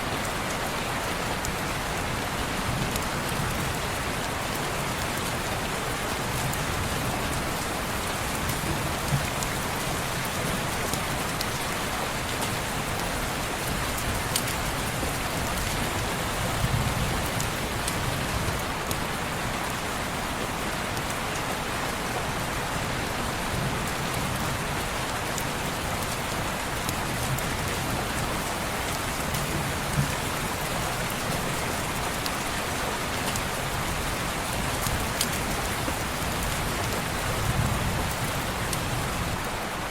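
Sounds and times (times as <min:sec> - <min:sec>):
rain on window glass: 0:02.5 - 0:19.4.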